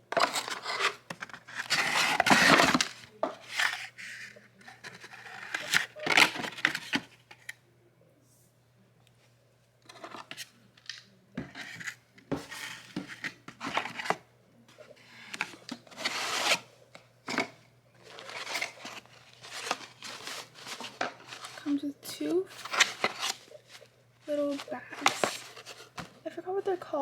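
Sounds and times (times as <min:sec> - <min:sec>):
packaging crinkling: 0:17.4 - 0:21.7, 0:22.5 - 0:26.2.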